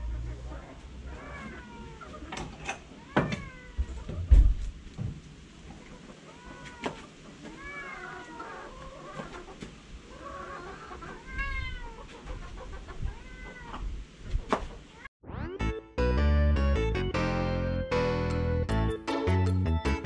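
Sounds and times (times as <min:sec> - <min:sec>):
cat meowing: 0:01.1 - 0:02.0, 0:07.6 - 0:08.6, 0:11.3 - 0:12.0, 0:13.1 - 0:13.8.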